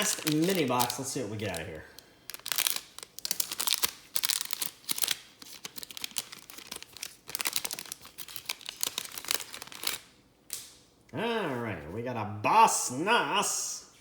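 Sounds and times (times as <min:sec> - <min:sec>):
packaging tearing and crinkling: 0:00.0 - 0:10.2.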